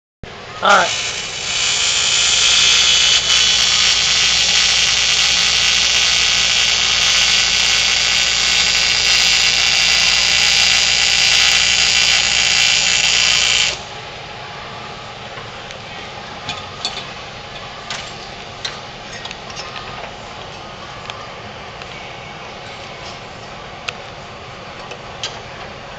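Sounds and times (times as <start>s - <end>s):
welding arc sizzling: 0.6s - 14.0s.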